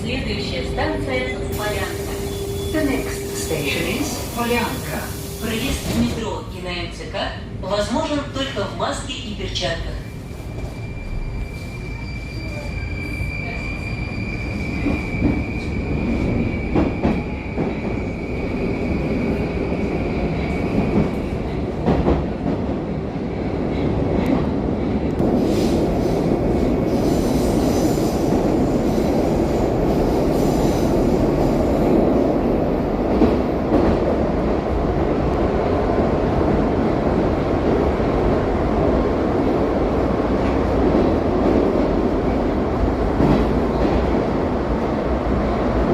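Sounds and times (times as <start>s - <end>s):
train running through tunnel: 0.0s - 45.9s
high squeal: 10.3s - 19.0s.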